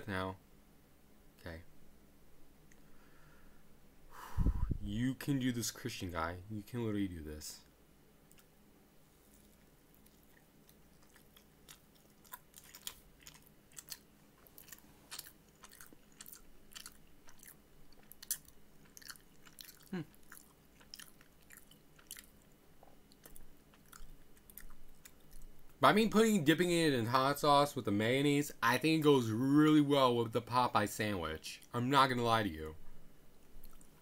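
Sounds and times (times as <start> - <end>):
person chewing with mouth clicks: 9.3 - 25.7, 33.6 - 34.0.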